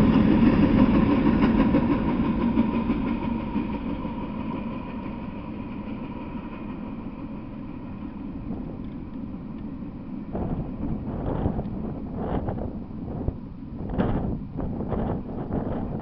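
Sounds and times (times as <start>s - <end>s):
freight train rumbling away: 0.0s - 16.0s
wind gusts on microphone: 8.4s - 16.0s.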